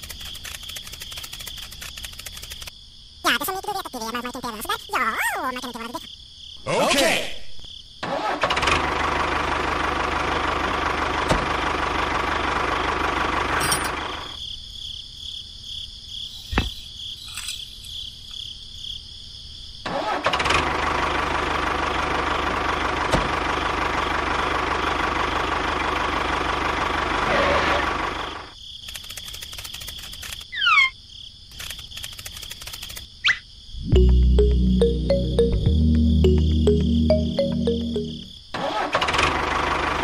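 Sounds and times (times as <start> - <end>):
model tractor engine running: 0.0 - 2.7, 8.4 - 14.3, 20.3 - 30.4.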